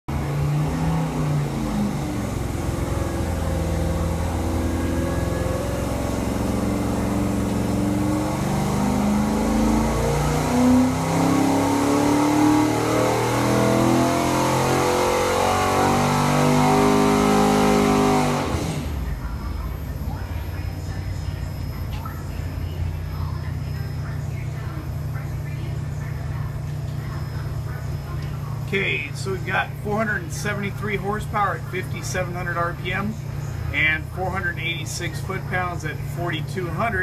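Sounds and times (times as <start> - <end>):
engine revving on dynamometer: 0.0 - 21.8.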